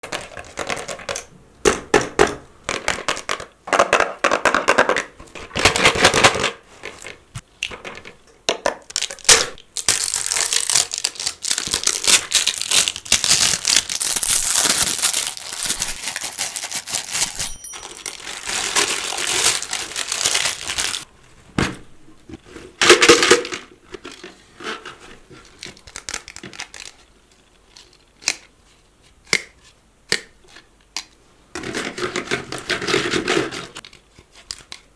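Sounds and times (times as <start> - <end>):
packaging wrappers crinkling: 8.9 - 21.1.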